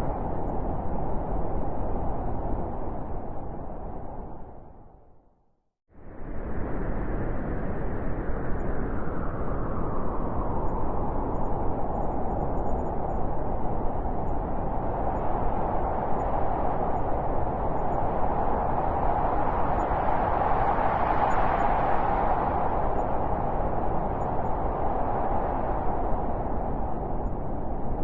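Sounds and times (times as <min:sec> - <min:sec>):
blizzard wind blowing: 0:00.0 - 0:05.3, 0:05.9 - 0:28.0.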